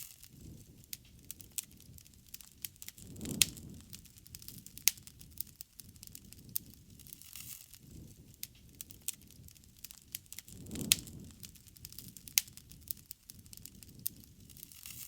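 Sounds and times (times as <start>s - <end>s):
bonfire crackling and popping: 0.0s - 15.0s.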